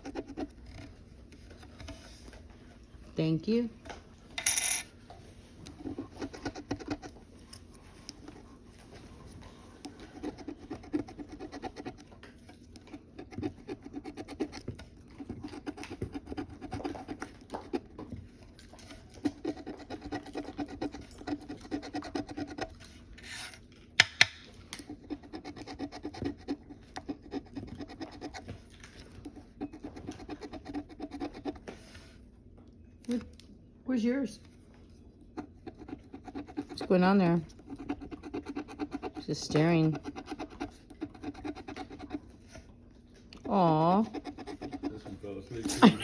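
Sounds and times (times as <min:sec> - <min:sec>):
lottery ticket being scratched: 0:10.1 - 0:12.0, 0:35.6 - 0:42.2, 0:43.5 - 0:45.9.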